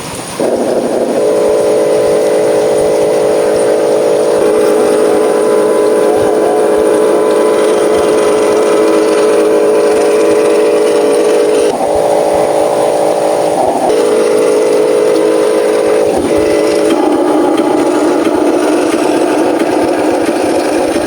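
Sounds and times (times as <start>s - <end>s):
small electric motors whining: 0.4s - 21.0s.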